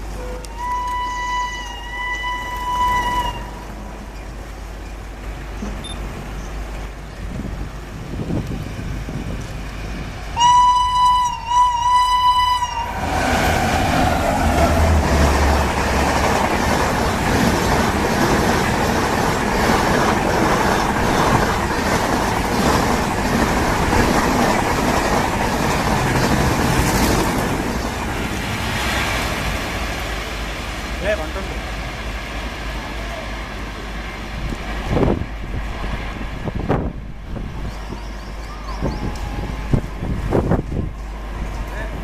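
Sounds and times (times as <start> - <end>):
train rushing past: 0.0 - 42.0
locomotive horn blasts: 0.1 - 3.6, 10.4 - 13.0.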